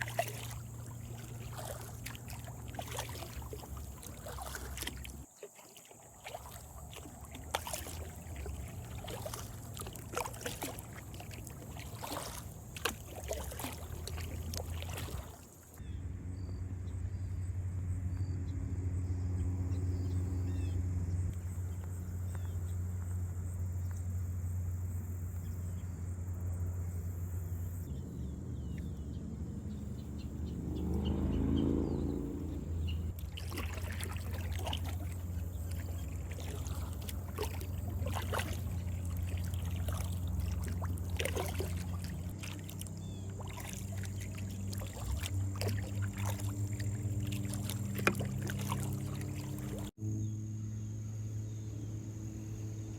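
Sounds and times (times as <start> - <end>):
paddle splashing water: 0.0 - 15.9, 28.6 - 49.9
steady low hum: 6.2 - 52.9.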